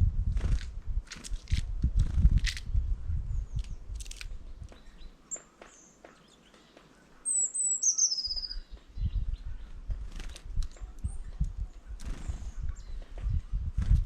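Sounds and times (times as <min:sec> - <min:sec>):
songbird chirps and trill: 0:03.3 - 0:13.6.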